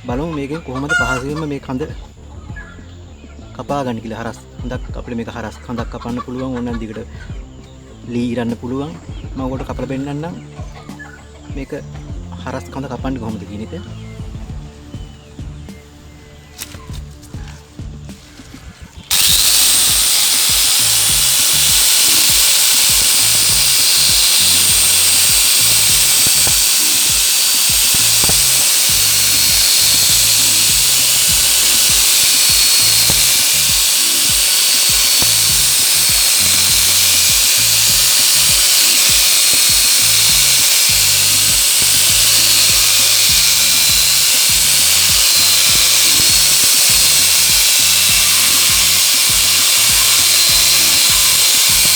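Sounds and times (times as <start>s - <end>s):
angle grinder cutting wood: 0.0s - 2.3s, 19.0s - 51.9s.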